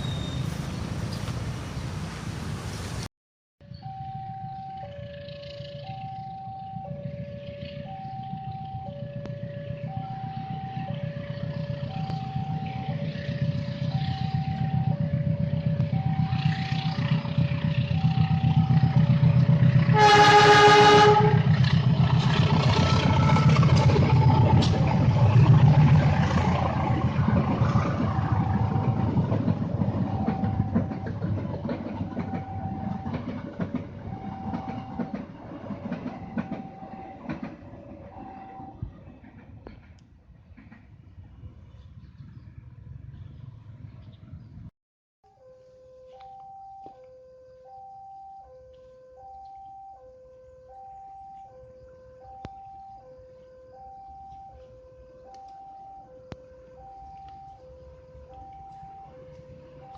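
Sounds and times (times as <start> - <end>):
train rumbling and clattering: 0.0 - 3.1, 6.9 - 44.4
level crossing signal: 3.6 - 21.8, 28.4 - 38.9, 45.4 - 59.9
train horn blast: 11.5 - 25.0.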